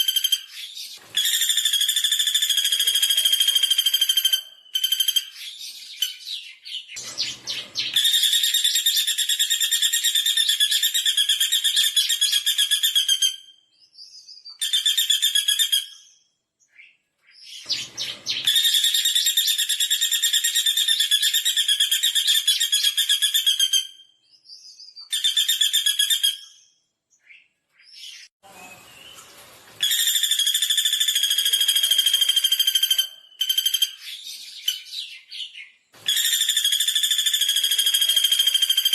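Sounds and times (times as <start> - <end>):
woodpecker rattling trills: 7.2 - 12.9, 36.1 - 38.9.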